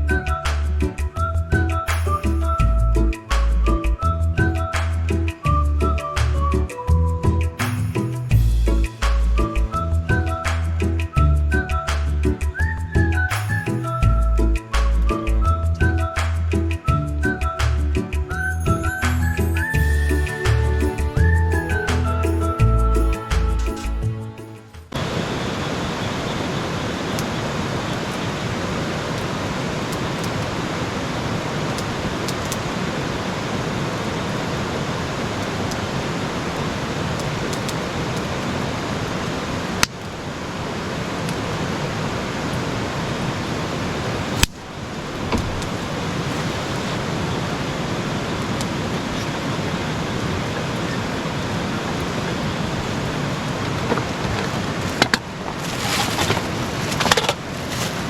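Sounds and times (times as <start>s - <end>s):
steady rushing noise: 24.9s - 58.0s.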